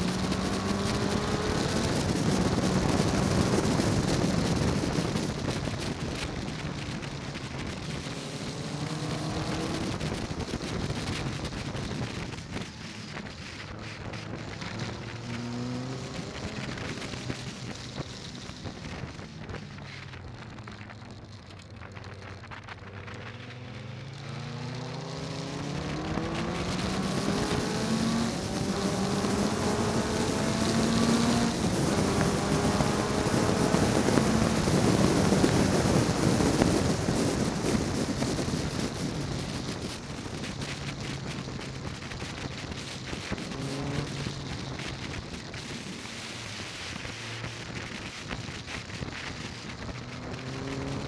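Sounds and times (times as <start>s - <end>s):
car engine accelerating: 0.0s - 51.0s
wind rushing: 24.2s - 51.0s.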